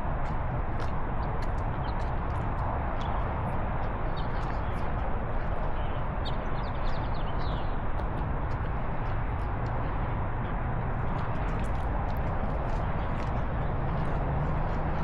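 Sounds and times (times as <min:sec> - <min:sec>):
steady outdoor rumble: 0:00.0 - 0:15.0.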